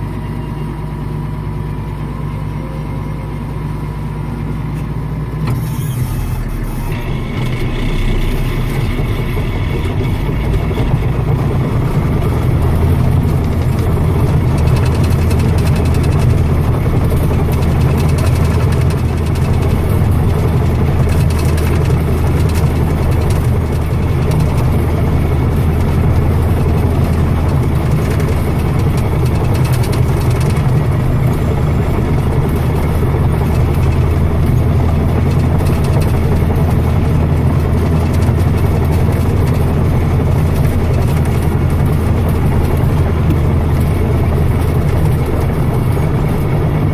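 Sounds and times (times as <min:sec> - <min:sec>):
heavy machinery engine drone: 0:00.0 - 0:46.9.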